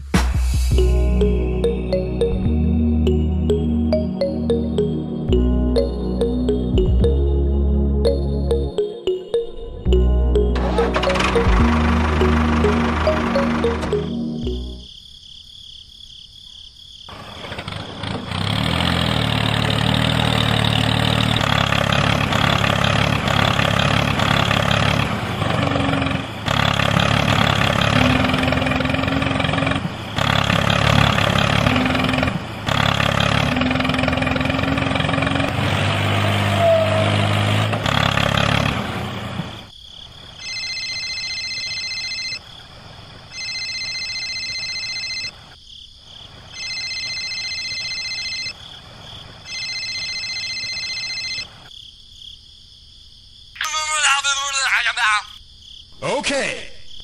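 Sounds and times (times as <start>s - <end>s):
phone ringtone: 0.8s - 7.4s, 8.0s - 14.9s, 40.4s - 42.4s, 43.3s - 45.5s, 46.6s - 48.6s, 49.5s - 51.6s
tractor engine running: 10.0s - 14.8s, 17.1s - 39.7s.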